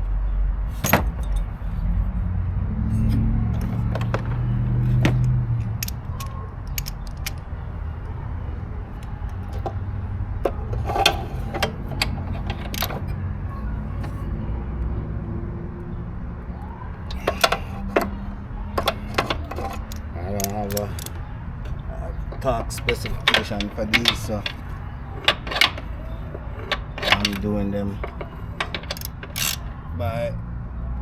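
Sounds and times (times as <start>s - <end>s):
wrench clicking on bolts: 3.0s - 7.4s, 9.0s - 9.8s, 10.7s - 13.2s, 17.1s - 18.2s, 18.8s - 21.8s, 22.4s - 29.7s.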